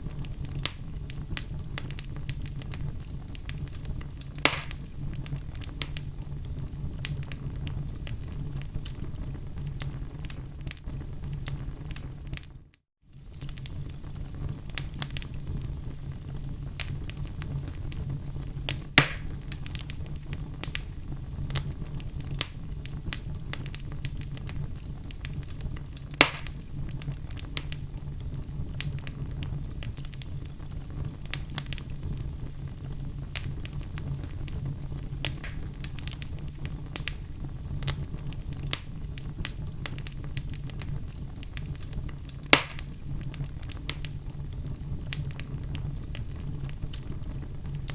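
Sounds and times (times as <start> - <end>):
fire crackling in fireplace: 0.0 - 47.9
loud wood pops: 4.4 - 4.8, 19.0 - 19.3, 26.2 - 26.6, 35.3 - 35.6, 42.5 - 42.9.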